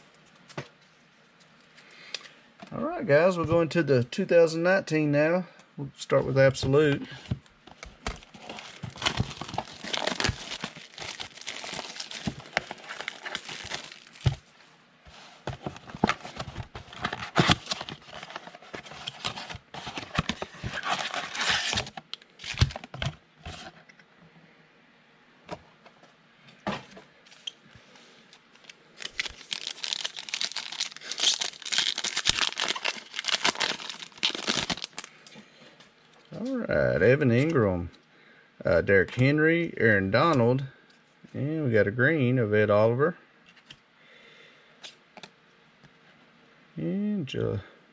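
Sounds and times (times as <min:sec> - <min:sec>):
wrapping crinkling and tearing: 0:08.1 - 0:14.5, 0:15.5 - 0:23.0, 0:28.3 - 0:35.2.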